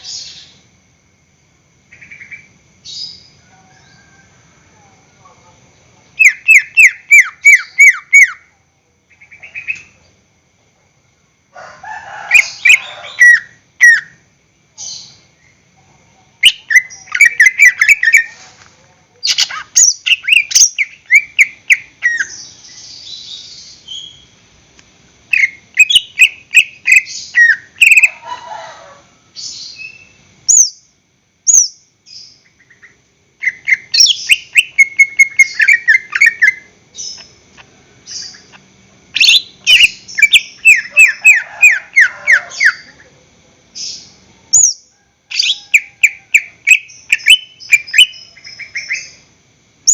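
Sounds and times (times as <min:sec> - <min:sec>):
bird singing rapid chirps: 0:06.2 - 0:08.4, 0:16.4 - 0:18.4, 0:19.2 - 0:24.3, 0:25.3 - 0:28.1, 0:31.5 - 0:37.4, 0:38.0 - 0:42.9, 0:43.8 - 0:49.2.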